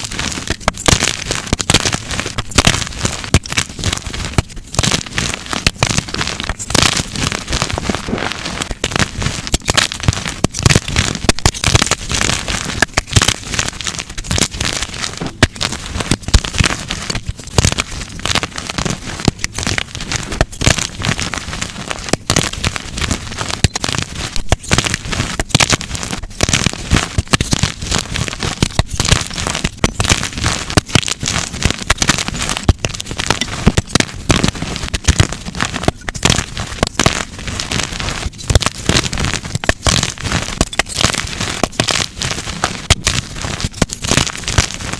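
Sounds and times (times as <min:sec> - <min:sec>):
chalk blocks crunching by hand: 0:00.0 - 0:44.9.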